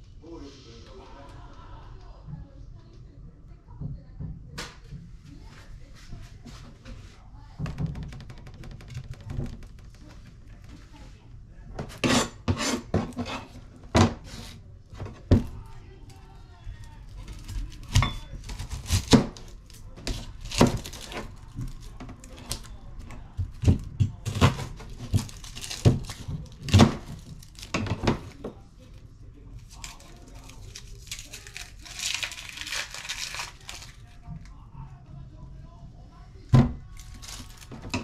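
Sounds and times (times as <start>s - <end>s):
plastic wrapper crinkling and tearing: 16.9s - 22.8s, 23.5s - 28.5s, 29.6s - 34.3s, 36.9s - 38.0s.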